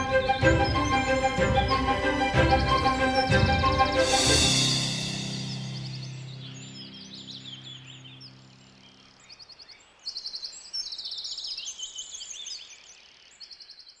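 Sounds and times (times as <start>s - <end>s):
held music chord: 0.0s - 8.8s
songbirds chirping and trilling: 0.0s - 14.0s.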